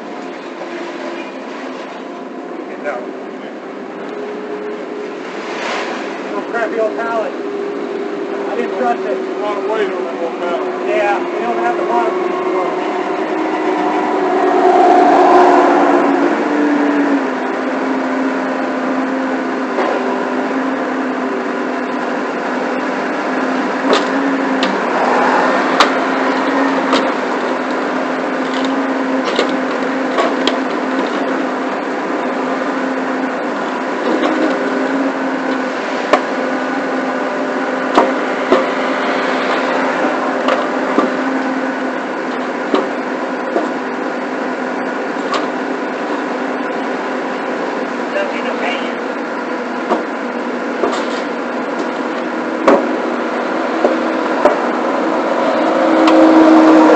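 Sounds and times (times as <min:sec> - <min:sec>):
engine running: 0:00.0 - 0:56.9
sharp knocks and clunks: 0:50.8 - 0:51.9, 0:52.6 - 0:53.0.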